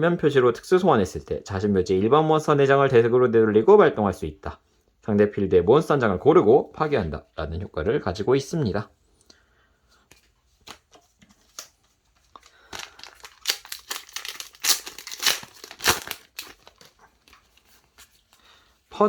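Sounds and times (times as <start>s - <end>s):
wrapper crinkling and tearing: 11.5s - 18.2s.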